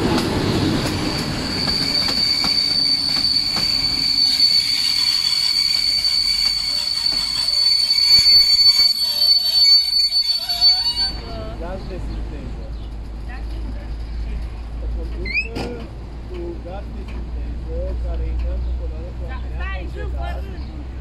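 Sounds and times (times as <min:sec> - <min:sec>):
high-pitched wheel squeal: 0:01.1 - 0:11.4.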